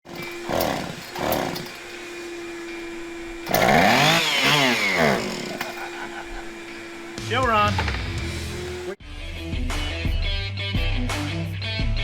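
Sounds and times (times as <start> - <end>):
engine revving: 0.0 - 9.0.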